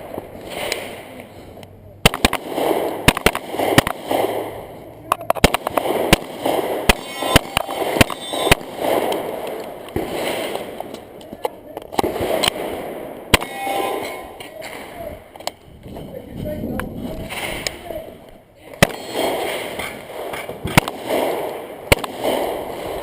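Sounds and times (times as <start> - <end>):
pistol shots: 2.0 - 4.7, 5.3 - 11.1, 11.9 - 15.0, 18.7 - 23.0.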